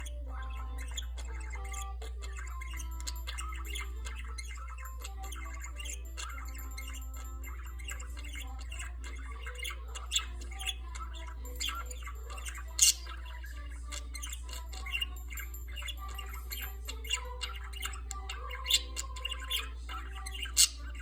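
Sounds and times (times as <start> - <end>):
budgerigar chirping and squawking: 0.0 - 21.0.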